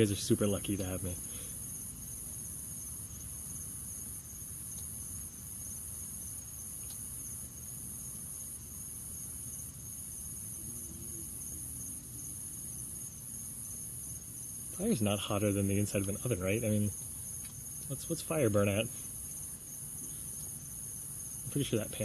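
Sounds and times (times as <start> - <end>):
crickets chirping: 0.0 - 22.0
low continuous rumble: 14.1 - 22.0.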